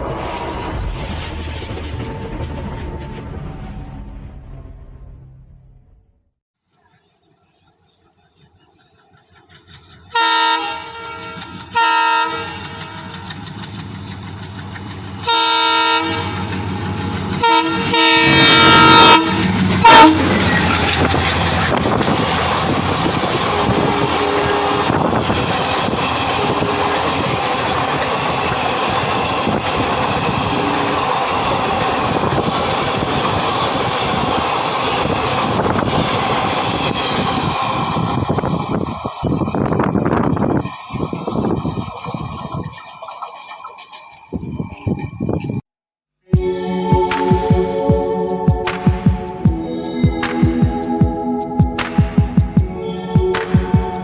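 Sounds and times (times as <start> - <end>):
train passing at speed: 0.0 - 5.8, 6.7 - 45.6, 46.4 - 54.0
locomotive air horn blasts: 10.1 - 13.0, 15.2 - 16.6, 17.4 - 20.5, 23.4 - 25.2.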